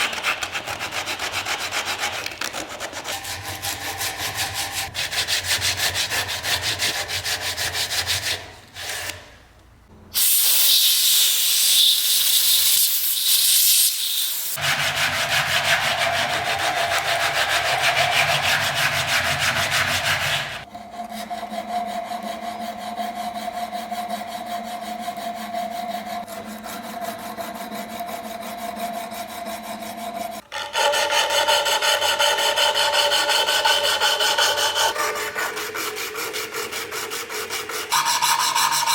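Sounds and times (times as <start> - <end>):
abrasive rubbing on a surface: 11.4 - 20.7.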